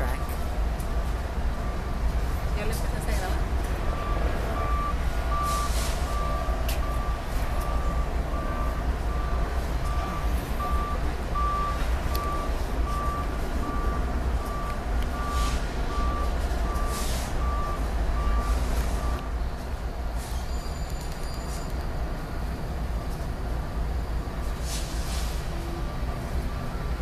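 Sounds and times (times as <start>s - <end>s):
freight train rumbling by: 0.0s - 21.4s
electronic warning signal beeping: 2.6s - 19.3s.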